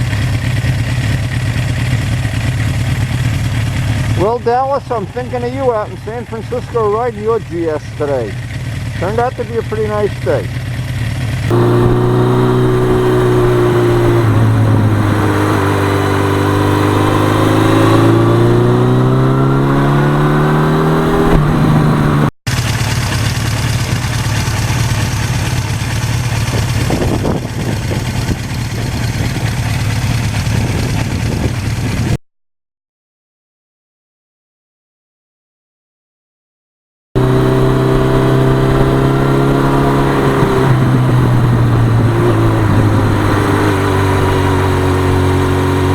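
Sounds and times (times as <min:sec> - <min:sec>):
motorcycle engine accelerating: 0:00.0 - 0:32.2, 0:37.2 - 0:45.9
rushing wind noise: 0:11.5 - 0:22.3, 0:26.4 - 0:29.6, 0:30.2 - 0:32.2, 0:37.2 - 0:45.9.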